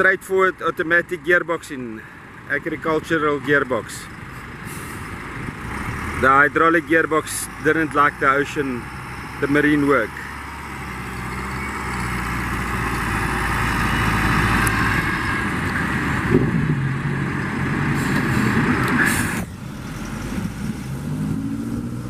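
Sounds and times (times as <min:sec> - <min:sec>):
tractor engine under load: 0:00.0 - 0:22.0
broad rushing noise: 0:12.5 - 0:22.0.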